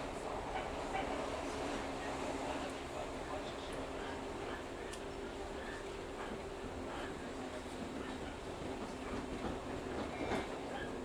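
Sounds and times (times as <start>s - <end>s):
train wheels rumbling on rails: 7.7s - 11.0s.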